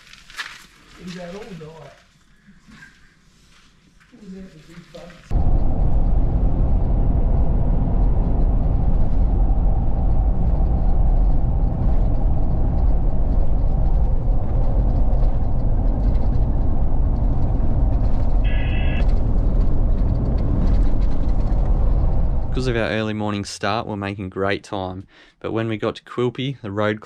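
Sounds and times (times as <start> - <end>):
vehicle driving at road speed: 5.3 - 22.8
short high tone: 18.5 - 19.0.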